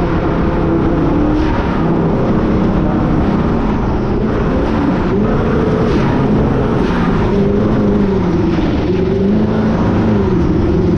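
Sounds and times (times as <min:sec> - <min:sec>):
car engine running: 0:00.0 - 0:10.9
wind and road noise: 0:00.0 - 0:10.9.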